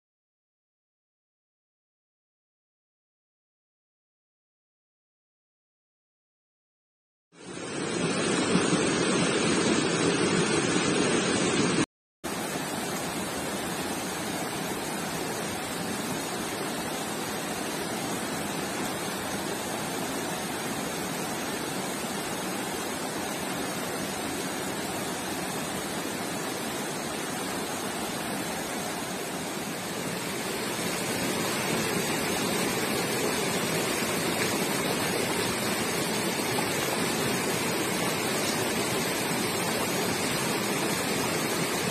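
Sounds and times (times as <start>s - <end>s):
creek water rushing: 7.4s - 41.9s.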